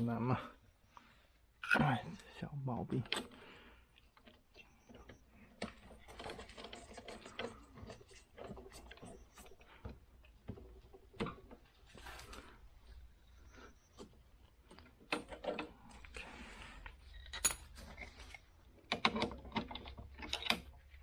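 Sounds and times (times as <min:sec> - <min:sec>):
clicks and taps of parts: 0:17.2 - 0:20.7.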